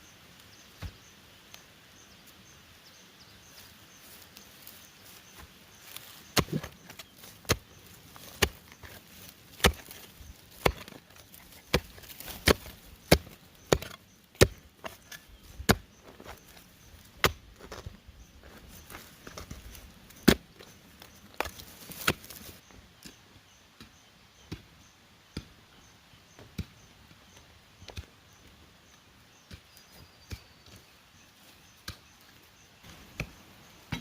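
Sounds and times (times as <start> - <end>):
chopping bamboo: 5.8 - 17.8, 18.9 - 22.5, 32.9 - 34.0.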